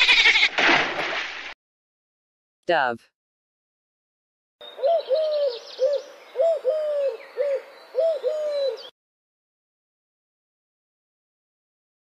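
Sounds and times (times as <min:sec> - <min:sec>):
dove cooing: 0:04.6 - 0:08.9
faint bird chirping: 0:04.6 - 0:09.0.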